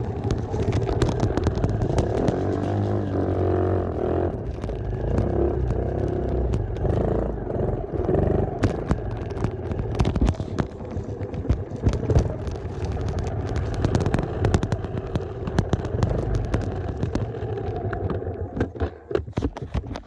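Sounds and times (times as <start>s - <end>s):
dirt bike engine running: 0.0s - 18.9s
sharp knocks and pops: 0.0s - 20.0s.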